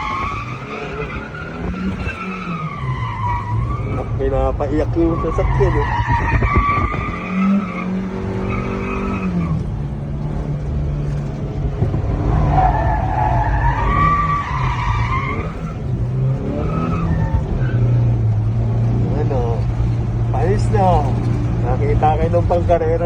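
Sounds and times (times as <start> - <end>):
tires screeching: 0.0 - 23.0
truck engine running: 0.0 - 23.0.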